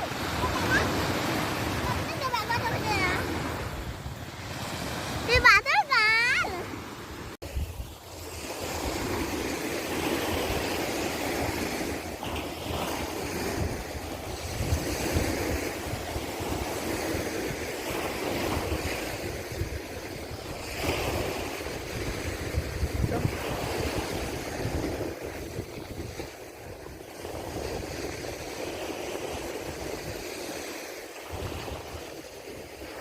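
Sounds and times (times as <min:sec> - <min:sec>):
surf washing onto beach: 0:00.0 - 0:33.0
wind buffeting microphone: 0:00.0 - 0:33.0.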